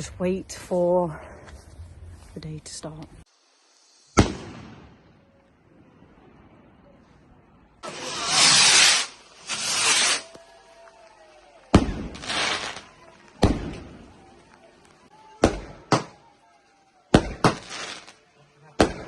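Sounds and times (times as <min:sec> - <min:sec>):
fireworks hissing whooshes: 0:03.2 - 0:05.0, 0:07.8 - 0:10.4, 0:11.7 - 0:12.9, 0:17.1 - 0:18.2
fireworks bangs: 0:04.1 - 0:05.2, 0:07.8 - 0:14.4, 0:15.3 - 0:16.3, 0:17.1 - 0:19.0.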